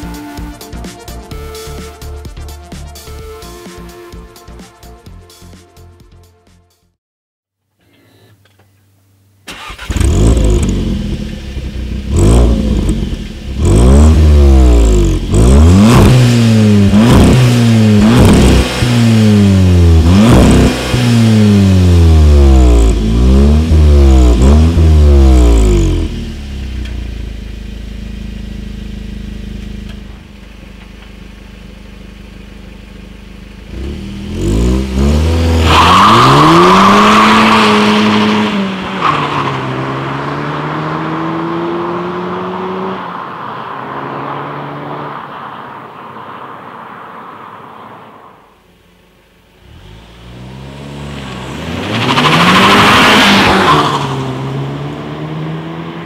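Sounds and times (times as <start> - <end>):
car engine idling: 8.4 - 35.6
car accelerating away: 9.5 - 30.3, 33.6 - 48.0, 49.6 - 56.0
car engine revving: 9.5 - 46.2, 49.6 - 56.0.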